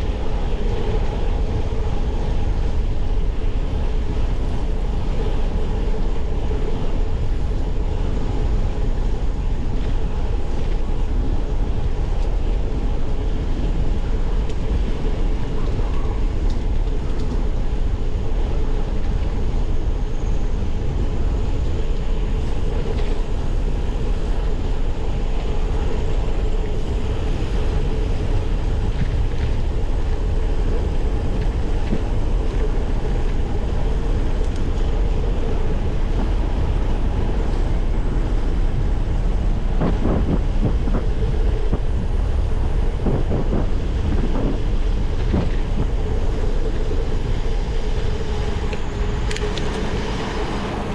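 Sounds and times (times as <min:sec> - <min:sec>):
wind on microphone: 0:00.0 - 0:50.9.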